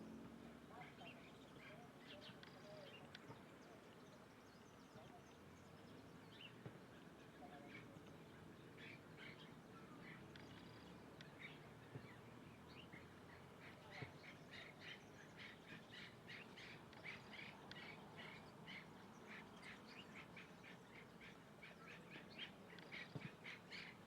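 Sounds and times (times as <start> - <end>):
birds chirping faintly: 0.0 - 24.0.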